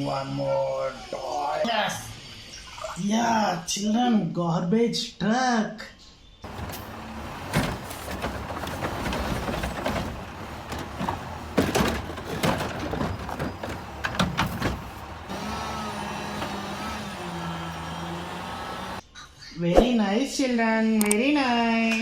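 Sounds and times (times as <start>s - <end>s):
garbage truck clanks and knocks: 6.4s - 19.0s
truck engine hum: 6.4s - 19.0s.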